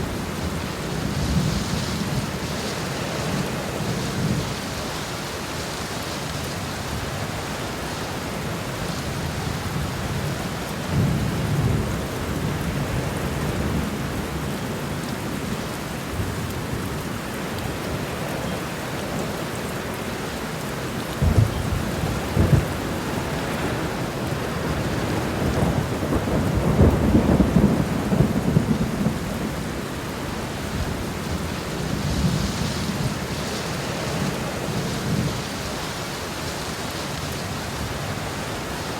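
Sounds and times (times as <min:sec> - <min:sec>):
steady rain: 0:00.0 - 0:38.9
thunder rumbling: 0:21.2 - 0:35.8.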